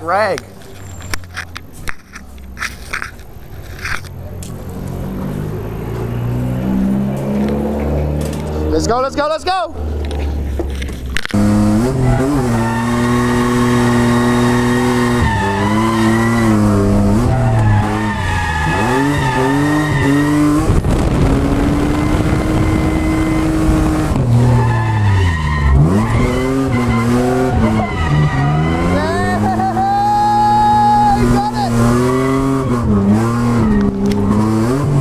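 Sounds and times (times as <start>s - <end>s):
car engine revving: 2.1s - 35.0s
tyres squealing: 11.8s - 20.6s, 24.4s - 34.8s.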